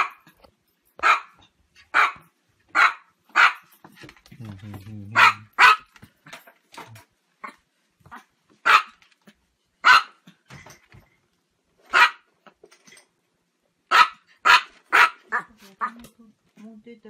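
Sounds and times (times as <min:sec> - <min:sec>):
small dog barking loudly: 0:01.0 - 0:03.7, 0:05.1 - 0:05.9, 0:07.4 - 0:09.0, 0:09.8 - 0:10.2, 0:11.9 - 0:12.3, 0:13.9 - 0:16.0
faint barks and yips: 0:01.0 - 0:03.8, 0:05.1 - 0:05.9, 0:07.4 - 0:09.0, 0:09.8 - 0:10.3, 0:11.9 - 0:12.3, 0:13.9 - 0:16.0.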